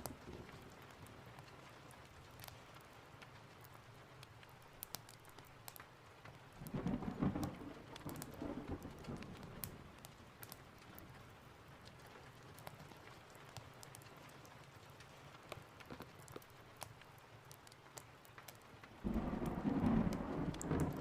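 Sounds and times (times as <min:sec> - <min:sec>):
sharp ticks and crackles: 0:00.0 - 0:21.0
steady rain: 0:00.0 - 0:21.0
thunder rolling: 0:19.0 - 0:21.0.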